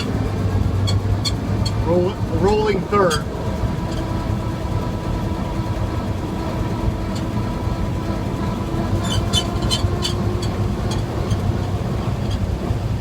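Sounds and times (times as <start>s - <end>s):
short high-pitched squeaks: 0.0s - 4.1s, 8.9s - 12.5s
truck engine rumbling: 0.0s - 13.0s.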